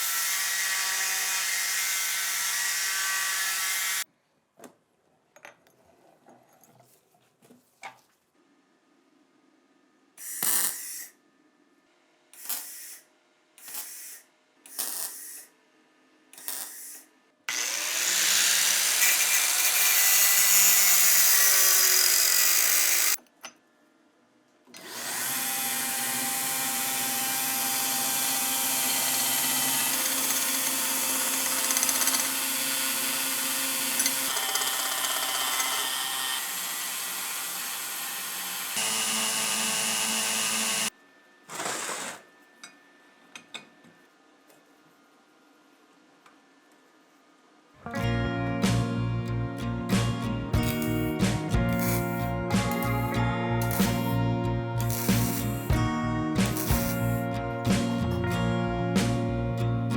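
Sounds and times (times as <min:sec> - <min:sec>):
handheld power tool running: 0:00.0 - 0:04.0, 0:16.4 - 0:23.2, 0:24.8 - 0:40.9, 0:50.6 - 0:54.2, 0:54.8 - 0:55.8, 0:56.4 - 0:57.2.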